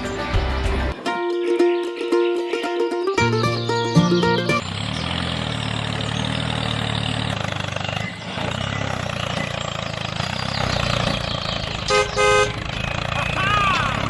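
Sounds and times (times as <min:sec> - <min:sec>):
engine idling with fast putter: 0:04.5 - 0:14.0.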